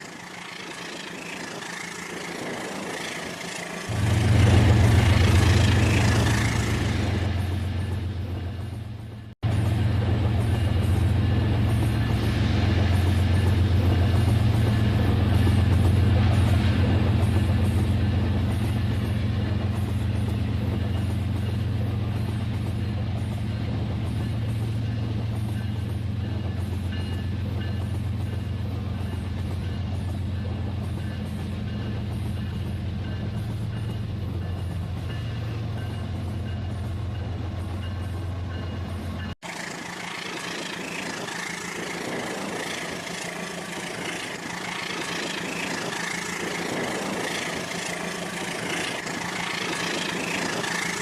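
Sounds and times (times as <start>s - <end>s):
toy train rushing noise: 39.4s - 51.0s.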